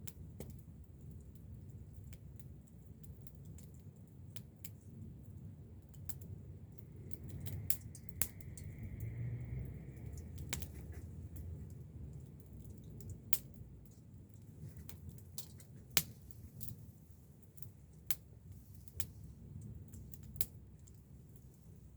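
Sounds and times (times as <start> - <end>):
campfire crackling and popping: 0.0 - 21.9.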